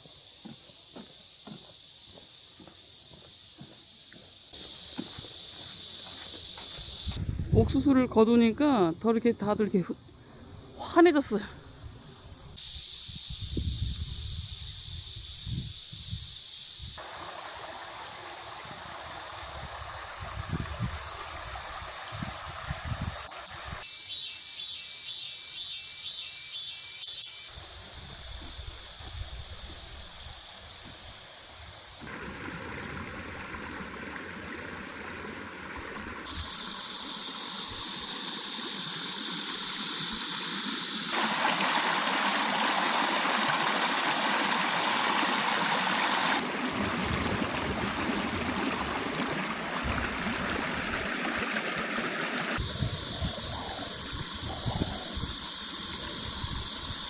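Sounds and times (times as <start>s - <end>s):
stream water rushing: 17.0s - 23.8s, 32.0s - 56.8s.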